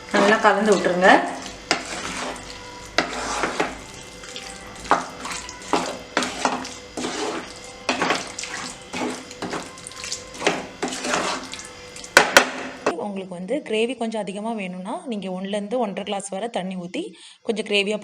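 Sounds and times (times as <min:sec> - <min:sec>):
spoon scraping and sloshing in pan: 0:00.0 - 0:12.9.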